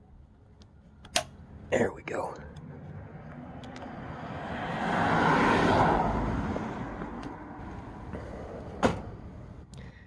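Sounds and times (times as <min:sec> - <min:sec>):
passing vehicle rushing: 0:02.7 - 0:09.6.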